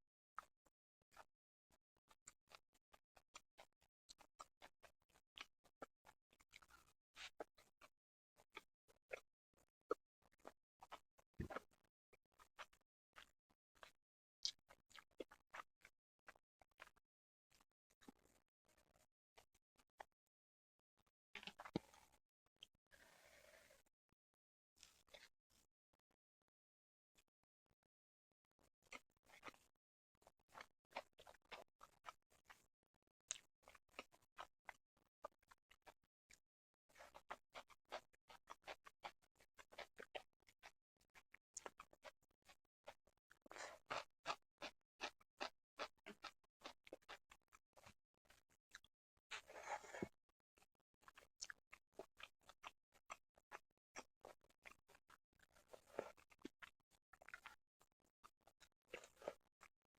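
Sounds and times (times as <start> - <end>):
wet chewing clicks and smacks: 2.2 - 9.3, 9.9 - 19.6, 28.8 - 32.6, 33.3 - 36.0, 36.9 - 57.6, 58.2 - 59.7
person chewing: 12.6 - 15.7, 21.4 - 22.1, 28.9 - 29.7, 30.5 - 32.6, 37.1 - 38.8, 39.6 - 40.2, 41.6 - 42.6, 43.4 - 47.2, 47.8 - 50.1, 51.1 - 53.2, 54.0 - 57.6, 58.9 - 59.4.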